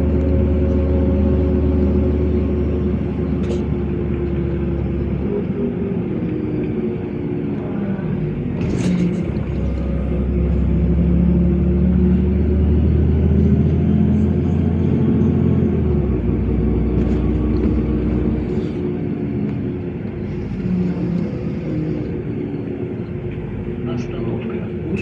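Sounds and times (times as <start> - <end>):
bus engine rumble: 0.0 - 25.0.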